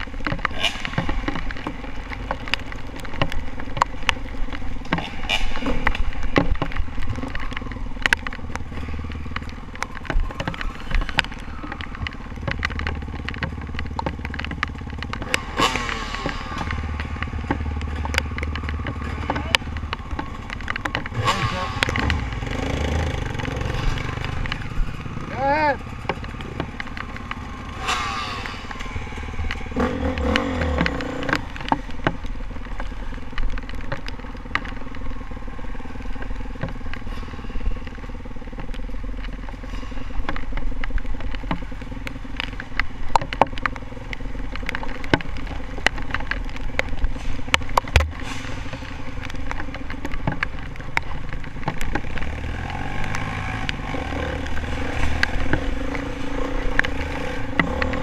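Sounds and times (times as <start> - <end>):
sharp clicks and clatter: 0.0 - 58.0
dirt bike engine revving: 10.3 - 32.5, 51.7 - 58.0.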